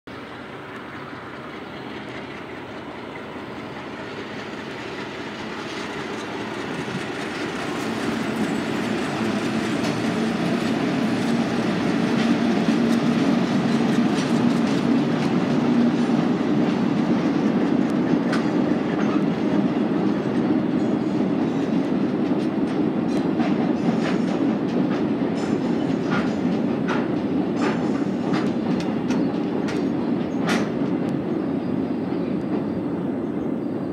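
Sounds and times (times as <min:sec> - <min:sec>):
diesel locomotive engine drone: 0:00.1 - 0:33.9
wagon wheels clattering over rail joints: 0:05.7 - 0:16.2.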